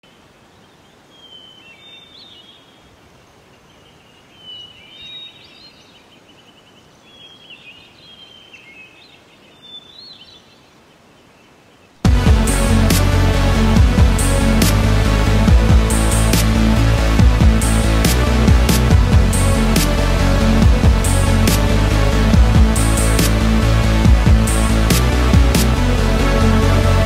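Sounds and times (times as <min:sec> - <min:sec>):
steady outdoor hiss: 0:00.0 - 0:27.0
loud electronic music: 0:12.0 - 0:27.0.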